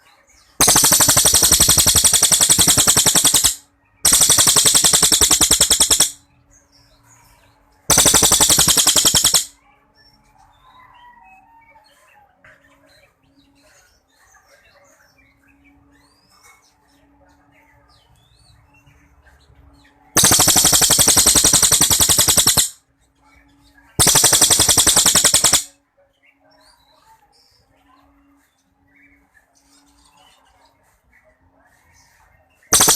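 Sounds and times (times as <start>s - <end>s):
songbird rattling trills: 0.6s - 6.2s, 7.9s - 9.5s, 20.2s - 22.8s, 24.0s - 25.7s.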